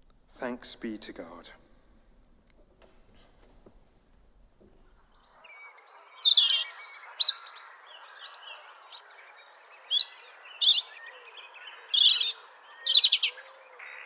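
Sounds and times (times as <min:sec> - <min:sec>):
faint steady background noise: 0:00.0 - 0:14.0
small birds chirping and singing: 0:04.8 - 0:14.0.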